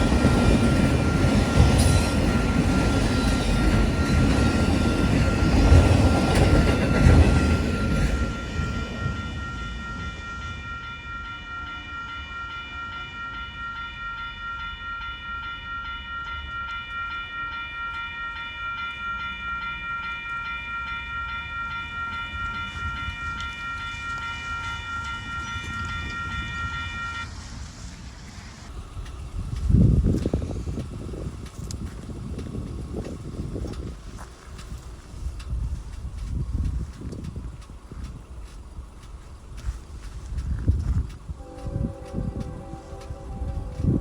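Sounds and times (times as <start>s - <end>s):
steady high-pitched tone: 0.0s - 27.8s, 41.4s - 44.0s
train rumbling past: 0.0s - 44.0s.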